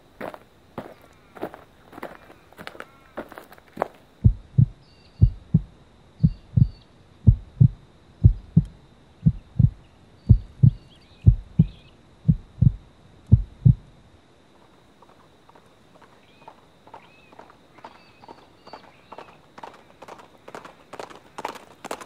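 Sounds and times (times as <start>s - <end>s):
heartbeat thumping: 4.2s - 13.9s.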